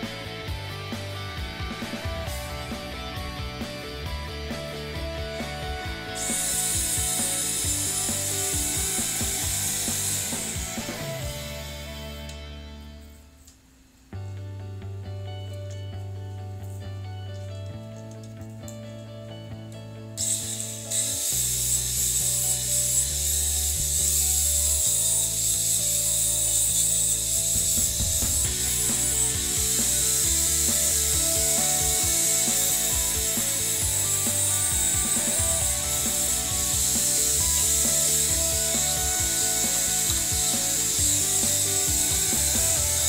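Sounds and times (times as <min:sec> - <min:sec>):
angle grinder grinding steel: 0:00.0 - 0:12.5, 0:20.2 - 0:43.0
background music with a beat: 0:00.0 - 0:12.8, 0:23.7 - 0:43.0.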